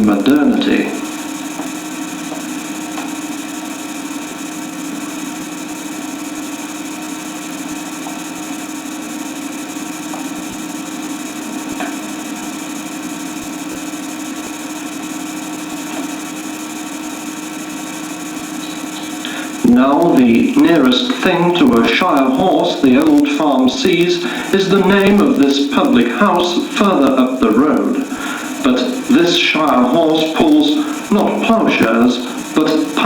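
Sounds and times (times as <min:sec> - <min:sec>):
film soundtrack hum and hiss: 0:00.0 - 0:33.0.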